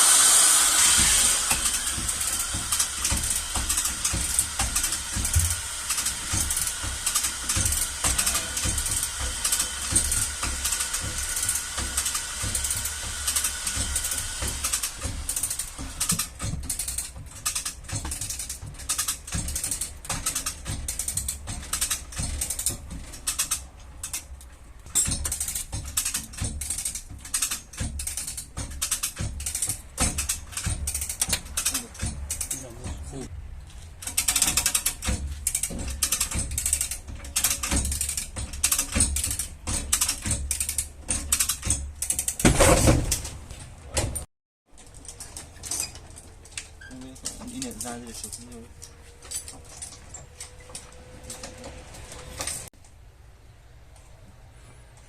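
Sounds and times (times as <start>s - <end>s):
steady tool hiss: 0.0s - 16.3s
rapid metallic clicking and tapping: 0.0s - 33.3s, 34.0s - 43.3s.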